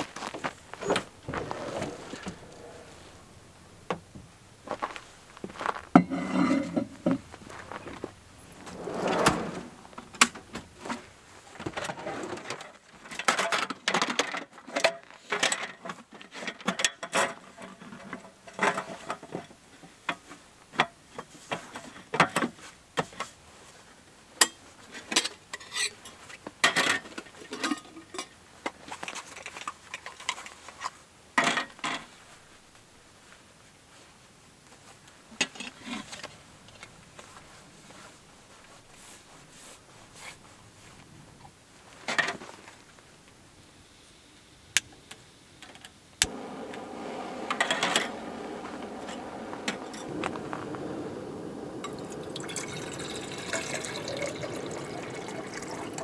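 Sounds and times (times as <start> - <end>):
soft rustle: 0.0 - 11.4.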